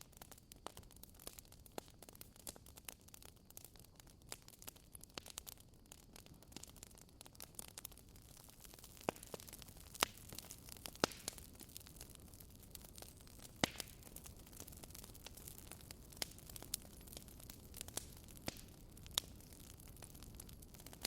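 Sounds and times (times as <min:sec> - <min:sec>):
wood fire crackling and popping: 0:00.0 - 0:21.0.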